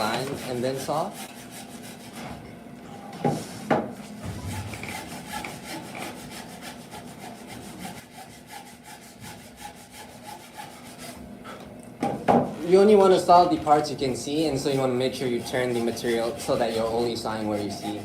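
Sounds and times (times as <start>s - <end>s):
hand saw cutting wood: 0.0s - 2.2s, 4.2s - 11.2s, 13.0s - 18.0s.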